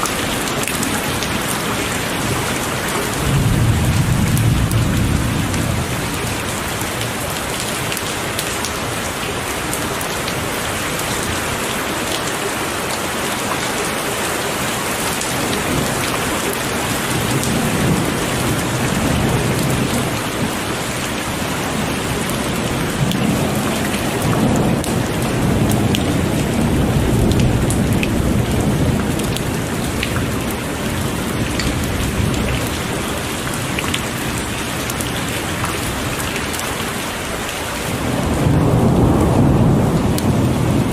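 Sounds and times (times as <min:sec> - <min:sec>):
raindrops ticking: 0:00.0 - 0:37.7
heavy rain pouring: 0:00.0 - 0:40.9
low thunder rumbles: 0:00.1 - 0:08.0, 0:15.4 - 0:35.3, 0:37.9 - 0:40.9.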